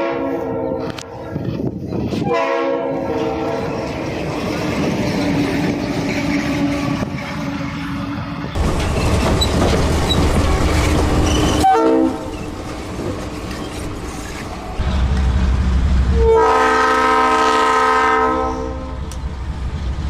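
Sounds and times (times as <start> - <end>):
locomotive air horn chord: 0.0 - 1.3, 2.2 - 3.7, 11.6 - 12.3, 16.1 - 19.1
diesel train running past: 0.0 - 20.0
wheels clattering over rail joints: 3.2 - 15.6.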